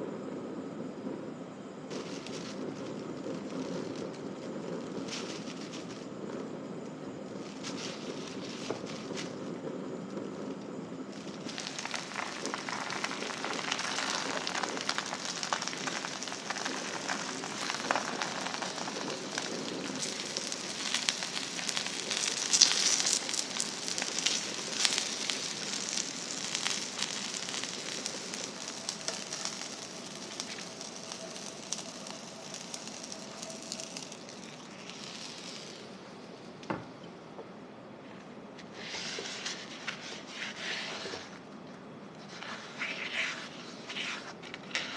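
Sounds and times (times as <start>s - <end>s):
fish and pepper sizzling in pan: 11.2s - 36.2s.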